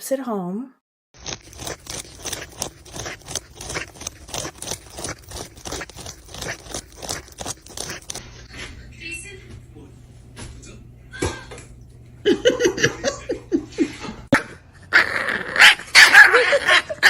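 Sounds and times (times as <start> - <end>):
dog scraping and crunching: 1.2 - 8.9.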